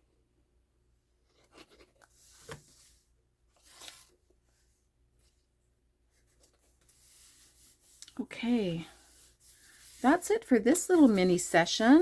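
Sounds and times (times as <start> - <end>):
paper rustling: 1.4 - 4.2.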